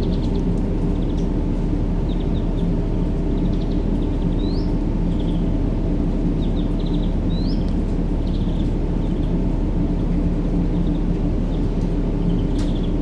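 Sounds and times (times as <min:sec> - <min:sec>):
small birds chirping: 0:02.0 - 0:05.6, 0:06.2 - 0:13.0.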